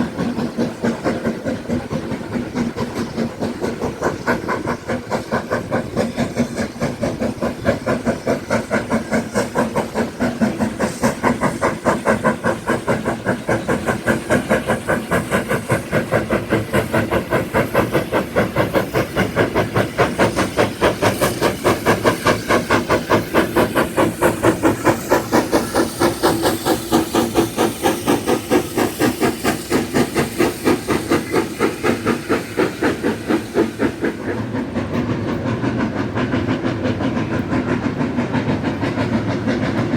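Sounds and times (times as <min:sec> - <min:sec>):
steam hiss: 0:00.0 - 0:39.9
steam locomotive exhaust chuffs: 0:00.0 - 0:39.9.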